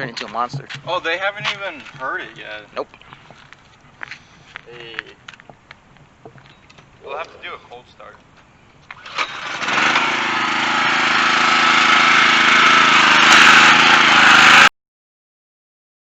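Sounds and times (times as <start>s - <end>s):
car engine starting and running: 8.9s - 14.7s.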